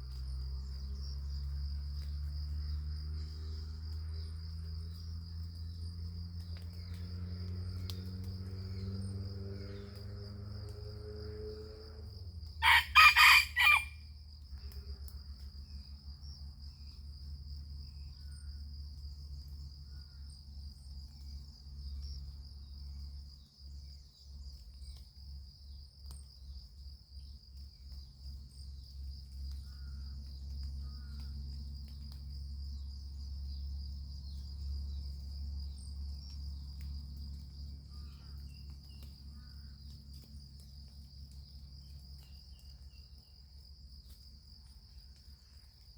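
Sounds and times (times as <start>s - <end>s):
high insect drone: 0.0s - 45.9s
rooster crowing: 12.6s - 14.0s.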